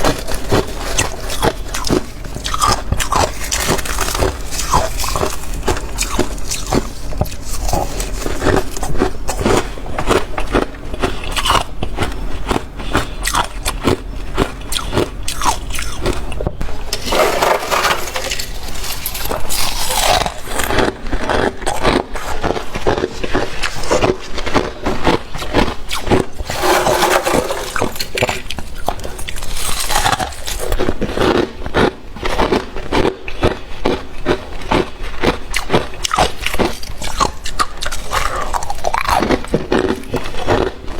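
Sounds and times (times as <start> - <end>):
crisp crunches of chewing frost: 0.0 - 16.4, 18.2 - 27.1, 27.7 - 34.0.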